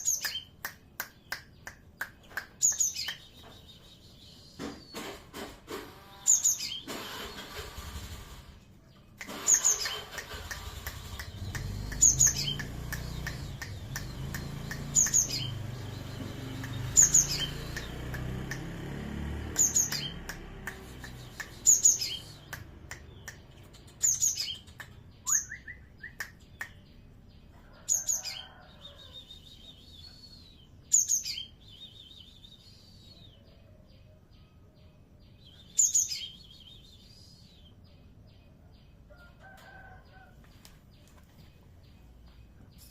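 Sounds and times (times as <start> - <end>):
bird chirping high: 0.0 - 5.2, 5.8 - 7.7, 8.6 - 18.8, 19.5 - 33.7, 34.4 - 38.2
buzzy bird calls: 9.2 - 18.1.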